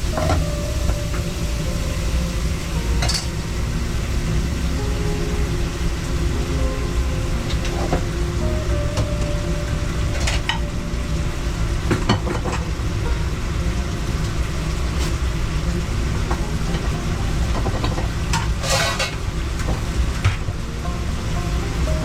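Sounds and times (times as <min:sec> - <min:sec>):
food sizzling in pan: 0:00.0 - 0:22.0
low rumble: 0:00.0 - 0:22.0
metal utensil clatters: 0:17.6 - 0:20.4.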